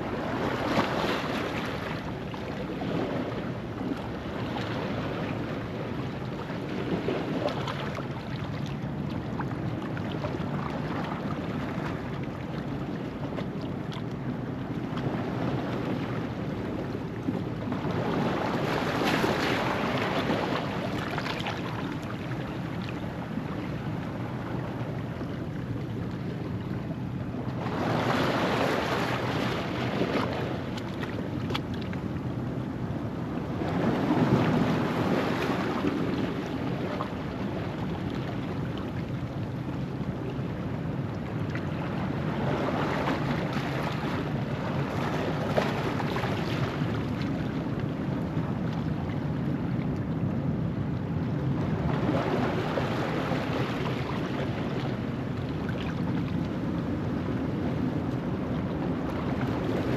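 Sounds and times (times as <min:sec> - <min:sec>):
steady surf wash: 0:00.0 - 0:12.2, 0:15.0 - 0:59.9
waves surging over rocks: 0:13.8 - 0:59.9.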